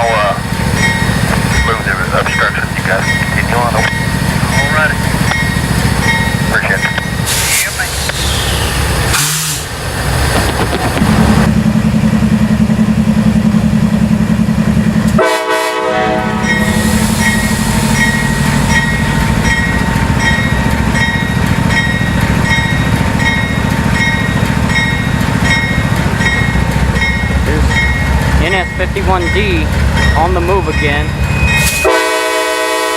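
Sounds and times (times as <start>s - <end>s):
bell ringing: 0.0s - 7.2s, 16.4s - 31.9s
diesel locomotive engines humming: 0.0s - 32.9s.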